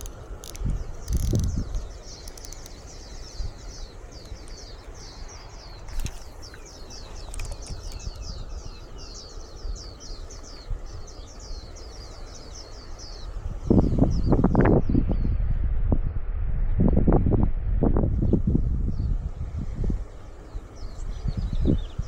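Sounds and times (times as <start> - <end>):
bird high chirps: 0.0 - 14.4
wind rumble on microphone: 0.0 - 22.0.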